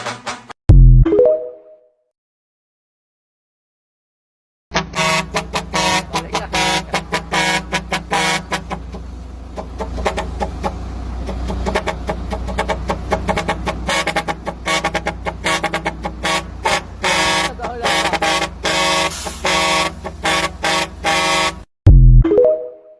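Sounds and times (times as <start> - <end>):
truck horn short toots: 4.7 - 21.7
engine low drone: 4.8 - 22.2.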